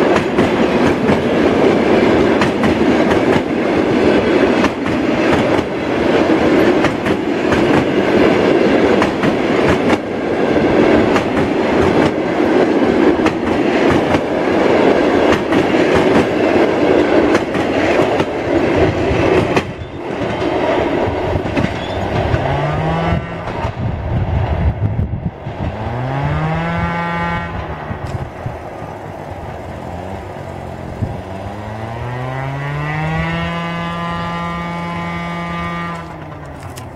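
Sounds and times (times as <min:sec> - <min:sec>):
train wheels clattering on rails: 0:00.0 - 0:24.6, 0:26.8 - 0:36.9
locomotive low humming tone: 0:26.2 - 0:36.9.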